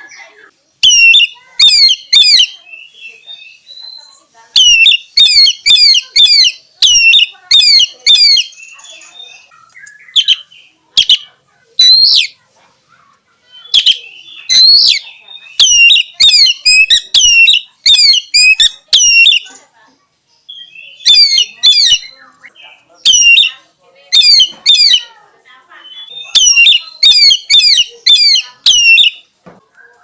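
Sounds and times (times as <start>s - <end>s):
songbird singing: 0.0s - 30.0s.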